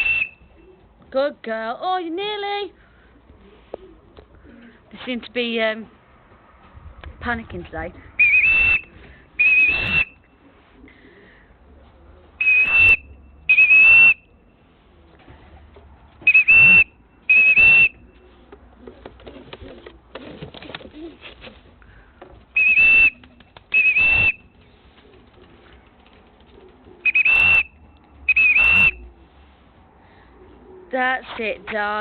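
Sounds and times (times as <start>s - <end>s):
high steady whistles: 0.0s - 0.5s, 8.2s - 10.4s, 12.4s - 14.3s, 16.3s - 18.2s, 22.6s - 24.4s, 27.0s - 29.1s.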